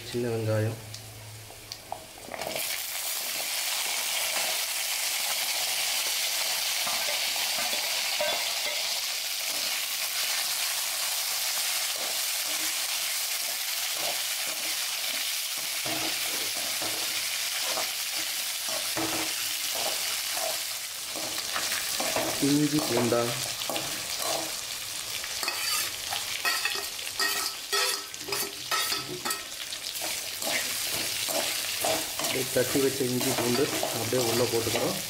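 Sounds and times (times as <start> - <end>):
shallots sizzling in hot oil: 0.1 - 35.0
ladle scraping metal pan: 25.4 - 32.4.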